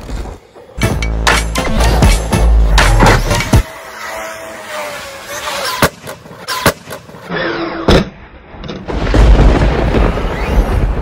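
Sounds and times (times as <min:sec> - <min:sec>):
rc car motor whine: 0:01.7 - 0:07.9.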